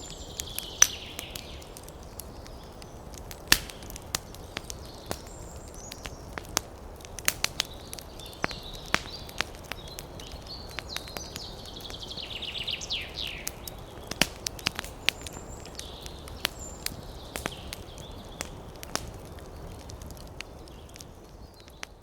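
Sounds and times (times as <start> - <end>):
wood fire crackling: 0.0 - 22.0
sharp pops and snaps: 0.3 - 12.2, 13.1 - 22.0.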